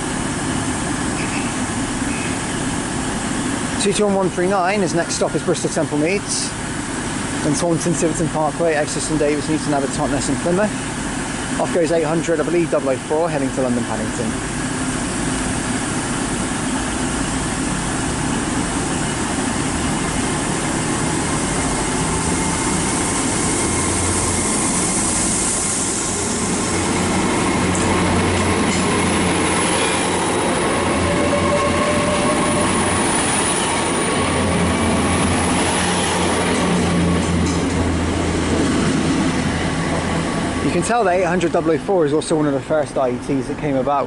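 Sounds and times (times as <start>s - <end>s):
diesel train pulling away: 0.0s - 44.0s
high whine: 13.5s - 42.0s.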